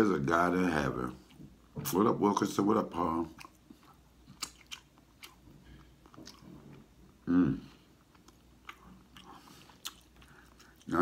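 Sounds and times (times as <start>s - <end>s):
man chewing: 3.3s - 11.0s
wet mouth smacks and clicks: 4.3s - 5.4s.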